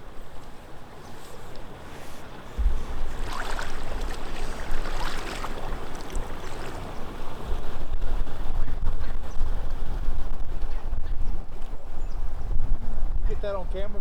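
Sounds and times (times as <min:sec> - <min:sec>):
wind rumble on microphone: 0:00.0 - 0:14.0
water sloshing and splashing: 0:01.3 - 0:07.6.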